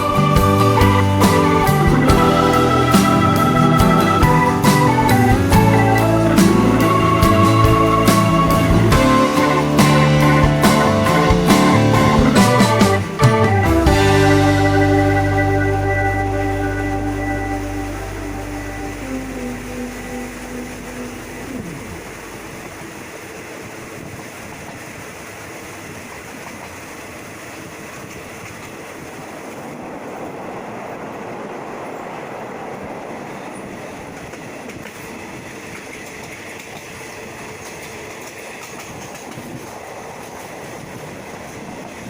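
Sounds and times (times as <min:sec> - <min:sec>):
music: 0:00.0 - 0:22.3
train on tracks: 0:00.0 - 0:42.0.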